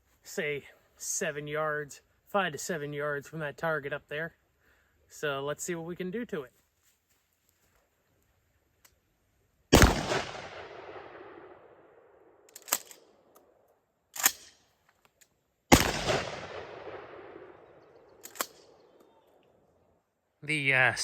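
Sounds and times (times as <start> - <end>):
shotgun blasts: 9.7 - 12.0, 15.7 - 18.9.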